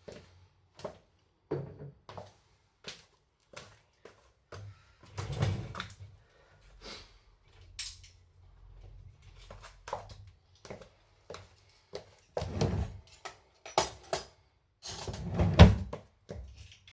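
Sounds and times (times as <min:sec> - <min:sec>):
cupboard doors and drawers: 0:05.1 - 0:06.1, 0:12.4 - 0:13.0, 0:15.0 - 0:16.0.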